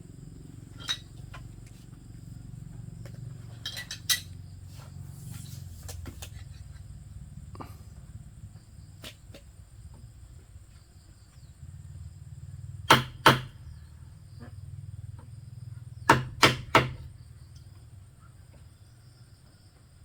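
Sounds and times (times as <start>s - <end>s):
tool striking bamboo: 12.8s - 13.6s, 16.0s - 17.1s.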